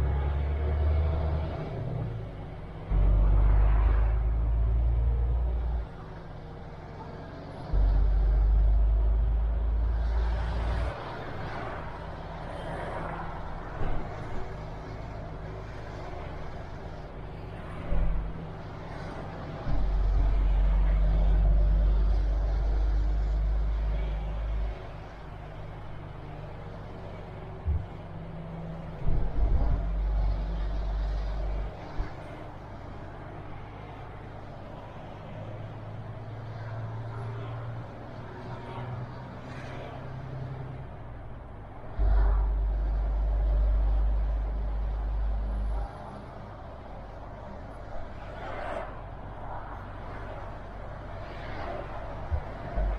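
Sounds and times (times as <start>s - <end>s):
truck diesel engine running: 0.0s - 34.8s
heavy low rumble: 2.2s - 6.2s, 7.4s - 32.9s, 41.0s - 48.2s.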